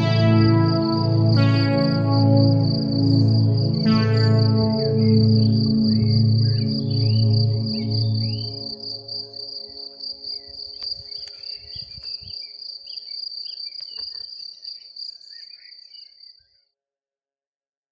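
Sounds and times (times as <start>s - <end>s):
crickets trilling: 4.4s - 16.4s.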